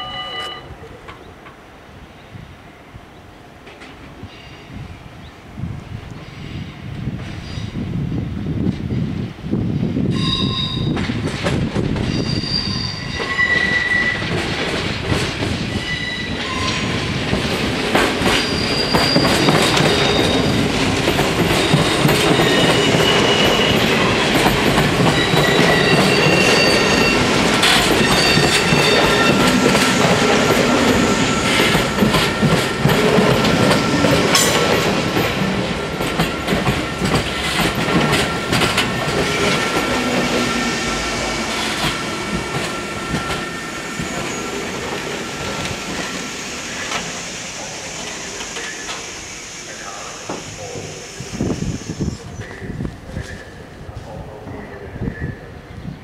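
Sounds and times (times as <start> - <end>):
high wheel squeal: 12.0 - 14.3, 15.7 - 17.0, 18.2 - 20.6, 21.8 - 24.4, 25.0 - 32.8, 39.3 - 52.4
train wheels clattering over rail joints: 13.2 - 40.6.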